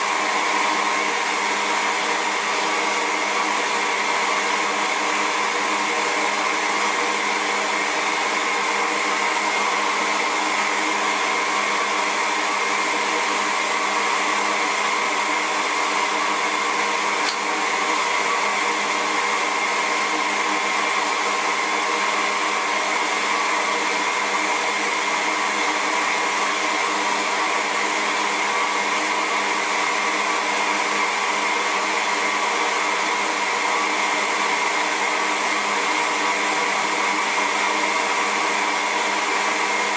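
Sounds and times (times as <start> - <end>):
hair dryer running: 0.0 - 39.9
brief click: 17.2 - 17.4.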